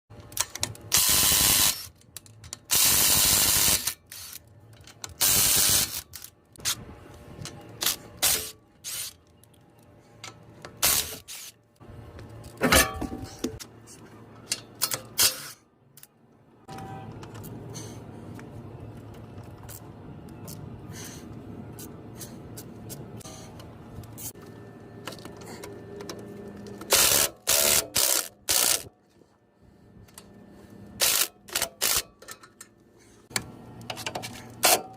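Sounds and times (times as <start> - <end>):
hand tools clicking and knocking: 31.0 - 34.9.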